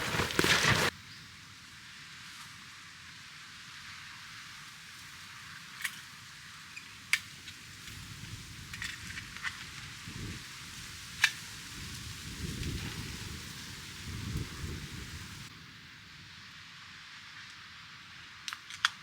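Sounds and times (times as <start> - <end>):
campfire crackling: 0.0 - 0.9.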